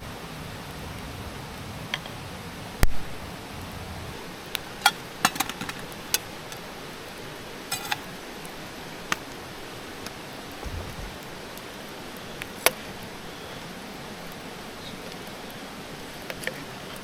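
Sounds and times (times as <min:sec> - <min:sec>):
steady hiss: 0:00.0 - 0:17.0
small hard objects clinking: 0:04.8 - 0:06.6, 0:07.7 - 0:08.1.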